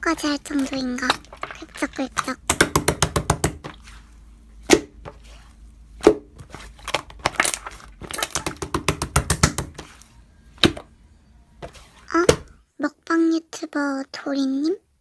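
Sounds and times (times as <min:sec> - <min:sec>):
slime crackling and popping: 0:06.5 - 0:10.0.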